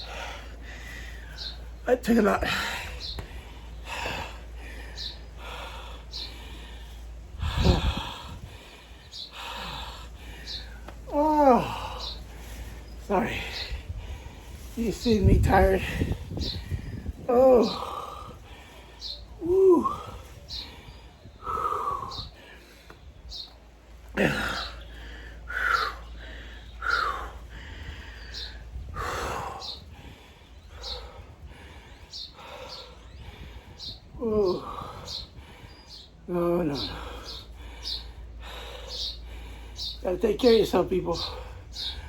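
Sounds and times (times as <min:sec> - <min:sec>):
man breathing hard: 0:00.0 - 0:01.8, 0:02.4 - 0:40.0, 0:41.1 - 0:42.0
man sighing and groaning: 0:09.3 - 0:12.3, 0:15.0 - 0:22.4, 0:24.0 - 0:29.8, 0:34.0 - 0:35.6.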